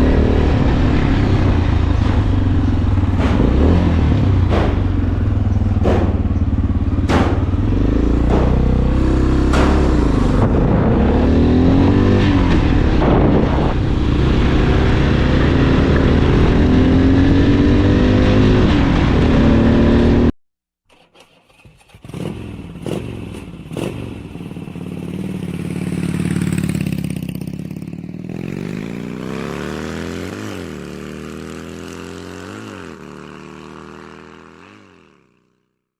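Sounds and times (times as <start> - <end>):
engine revving: 0.0 - 20.3, 21.4 - 35.6
motorcycle engine running: 0.0 - 20.3, 21.9 - 35.6.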